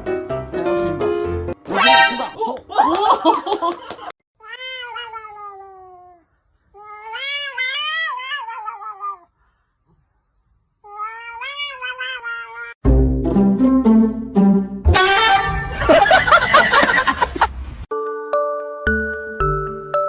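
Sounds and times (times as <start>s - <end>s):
cat yowling: 4.4s - 6.2s, 6.8s - 9.3s, 10.8s - 12.8s.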